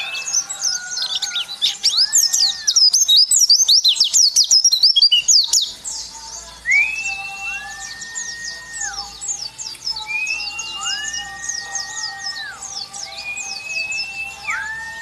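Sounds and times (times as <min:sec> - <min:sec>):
bird whistles rising and falling: 0:00.0 - 0:05.7, 0:06.6 - 0:15.0
bird chattering song: 0:00.0 - 0:15.0.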